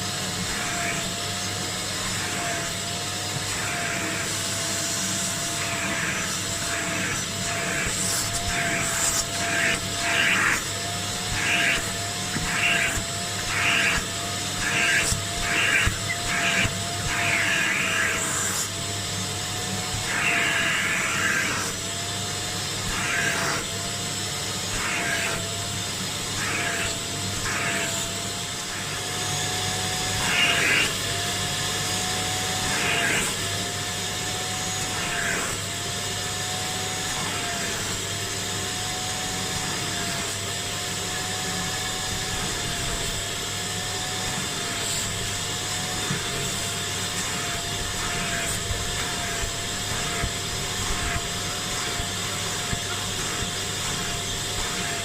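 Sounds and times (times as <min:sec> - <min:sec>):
suction motor whine: 0:00.0 - 0:55.0.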